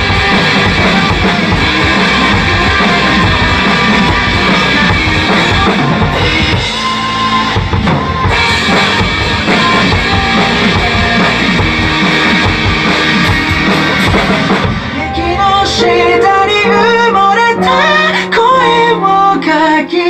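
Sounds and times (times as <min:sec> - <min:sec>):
drum kit playing: 0:00.0 - 0:19.2
bass and keyboard notes: 0:00.0 - 0:20.0
pop-rock backing track: 0:00.0 - 0:20.0
person singing a melody: 0:08.5 - 0:11.6, 0:14.9 - 0:20.0.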